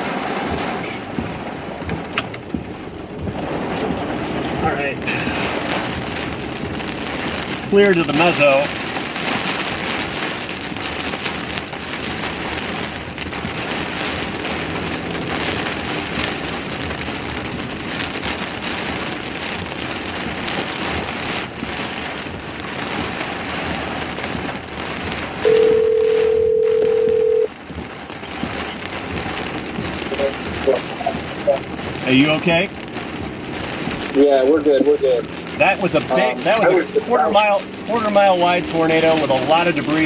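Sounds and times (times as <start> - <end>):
heavy rain on a vehicle: 0.0 - 40.0
telephone ringback tone: 25.5 - 27.5.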